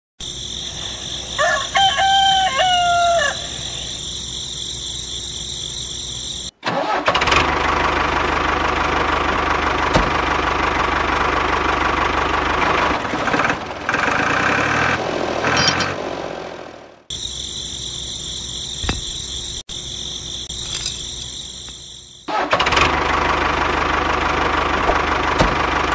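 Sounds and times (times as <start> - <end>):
rooster crowing: 1.0 - 4.0
engine running: 4.0 - 17.3, 21.6 - 25.9.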